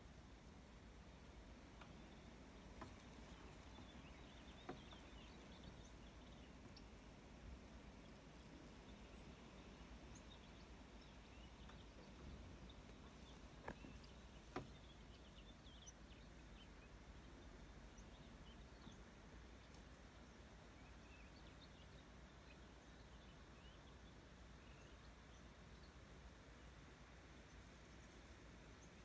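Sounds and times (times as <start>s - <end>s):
faint bird chirps: 7.9s - 29.0s.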